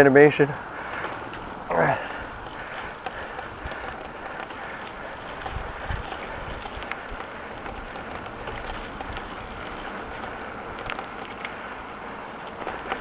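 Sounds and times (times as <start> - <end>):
bicycle tyre noise: 0.0 - 13.0
faint small ticks: 1.3 - 13.0
wind on microphone: 2.2 - 11.0.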